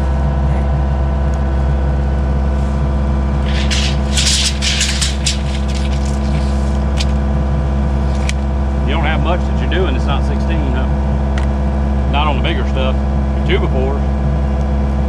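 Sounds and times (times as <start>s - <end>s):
burst of scratchy noise: 3.4s - 7.2s, 8.1s - 8.4s.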